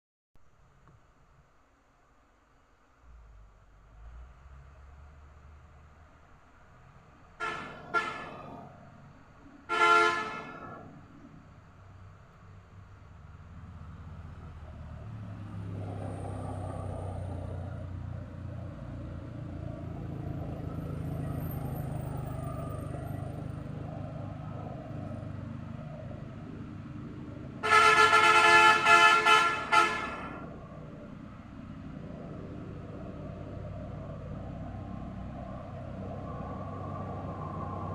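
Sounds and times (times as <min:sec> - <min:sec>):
vehicle horn blasts: 0:07.4 - 0:08.5, 0:09.7 - 0:10.8, 0:27.6 - 0:30.5.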